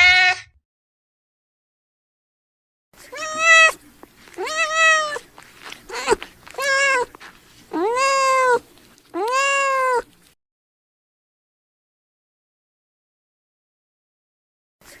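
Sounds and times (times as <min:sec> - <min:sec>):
cat meowing: 0:00.0 - 0:00.5, 0:03.0 - 0:10.2.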